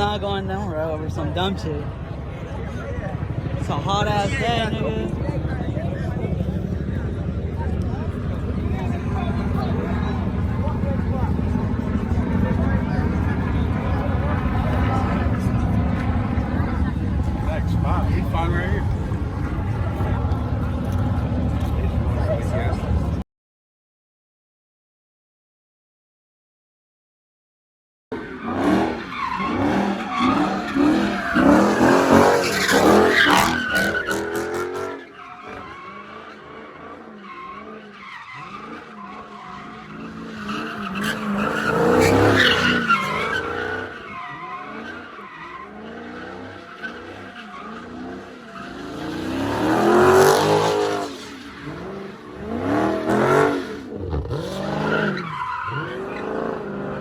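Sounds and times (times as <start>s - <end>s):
tyres squealing and skidding: 0.0s - 23.2s, 28.2s - 57.0s
car engine revving hard: 28.3s - 45.0s, 45.6s - 57.0s.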